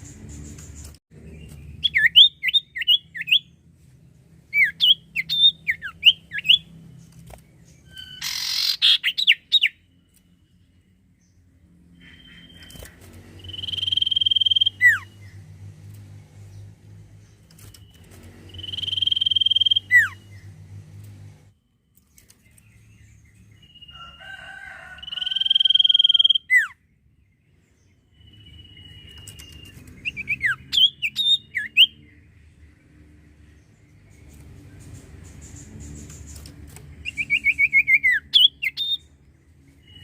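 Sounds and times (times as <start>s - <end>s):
bird whistling and chirping: 1.5s - 3.5s, 4.6s - 6.7s, 7.8s - 9.8s, 13.4s - 15.1s, 17.7s - 20.5s, 25.1s - 26.8s, 28.2s - 32.0s, 37.0s - 39.1s
low hum: 9.8s - 23.8s.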